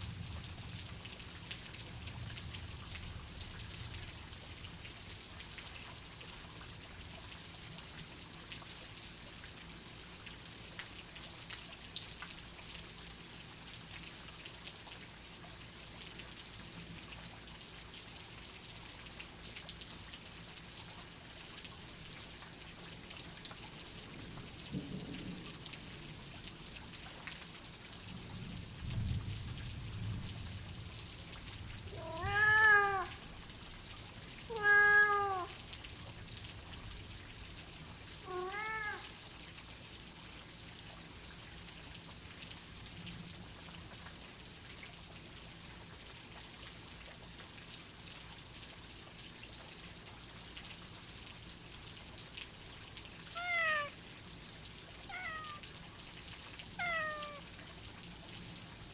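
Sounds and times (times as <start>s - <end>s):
steady rain: 0.0s - 58.9s
cat meowing: 31.9s - 33.2s, 34.5s - 35.6s, 38.2s - 39.0s, 53.3s - 54.0s, 55.1s - 55.7s, 56.8s - 57.5s.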